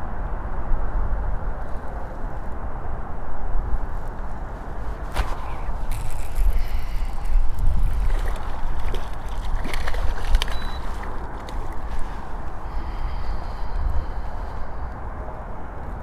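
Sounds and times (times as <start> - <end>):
steady low rumble: 3.5 - 16.0
water sloshing and gurgling: 4.7 - 15.0
light clicks: 5.1 - 12.9.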